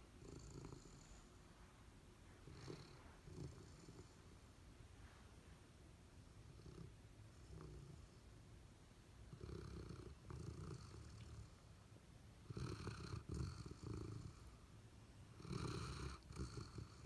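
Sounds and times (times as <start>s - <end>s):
dog snoring: 0.2s - 1.3s, 2.4s - 4.2s, 6.4s - 8.2s, 9.3s - 11.7s, 12.4s - 14.6s, 15.4s - 17.0s.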